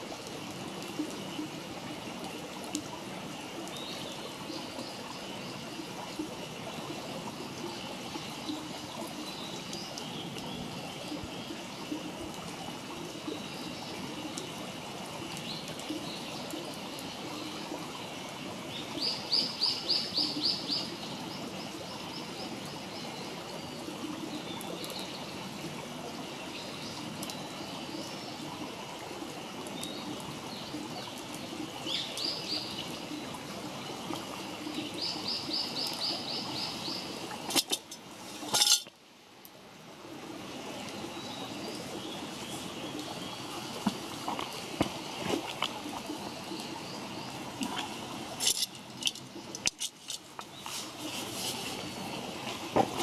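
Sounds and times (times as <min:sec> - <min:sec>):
steady background hiss: 0:00.0 - 0:53.0
campfire crackling: 0:36.7 - 0:39.6, 0:42.0 - 0:53.0.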